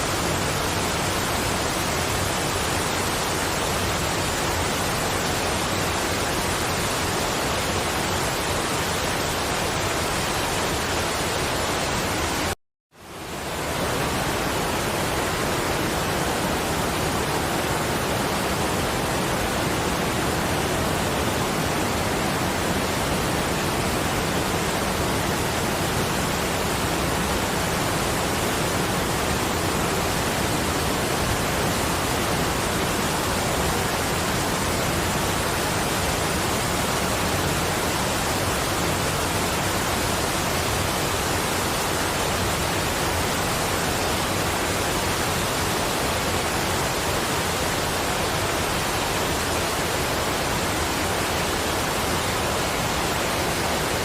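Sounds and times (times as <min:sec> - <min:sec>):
rushing water: 0:00.0 - 0:54.0.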